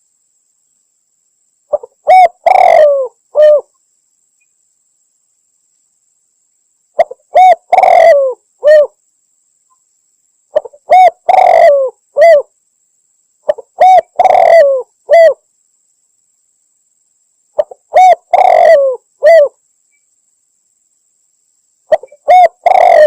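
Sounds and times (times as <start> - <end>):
dove cooing: 1.7 - 3.7, 7.0 - 8.9, 10.5 - 12.5, 13.5 - 15.4, 17.6 - 19.6, 21.9 - 23.0.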